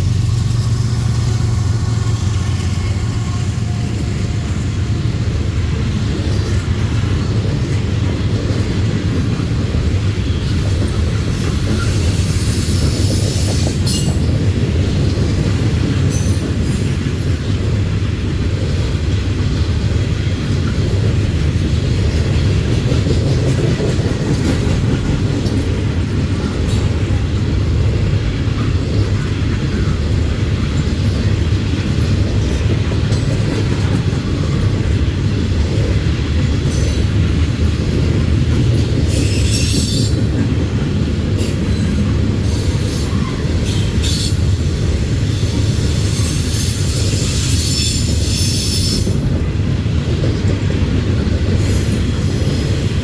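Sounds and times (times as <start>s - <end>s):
freight train rumbling on rails: 0.0s - 53.0s
high-pitched wheel squeal: 39.1s - 40.2s.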